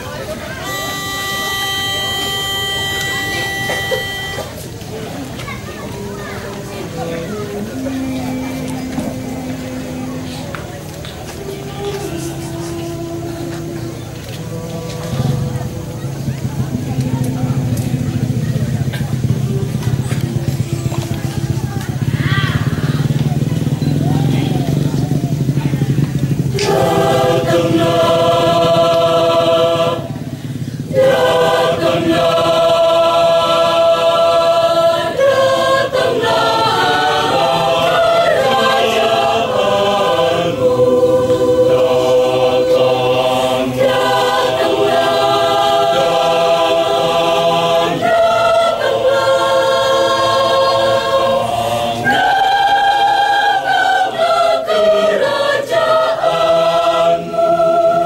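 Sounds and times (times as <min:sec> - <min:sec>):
choir singing long chords: 0:00.0 - 0:05.3, 0:05.9 - 0:58.0.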